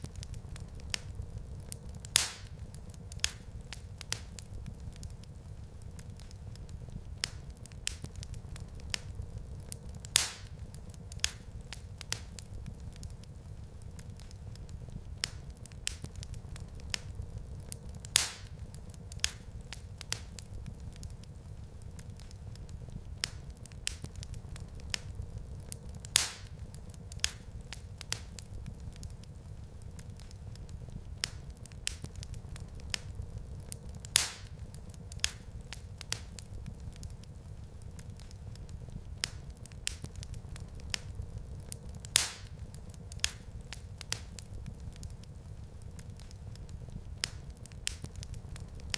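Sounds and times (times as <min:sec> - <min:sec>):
loud fire pops: 0:00.0 - 0:48.9
low rumble of flames: 0:00.0 - 0:48.9
wood fire crackling: 0:00.0 - 0:48.9.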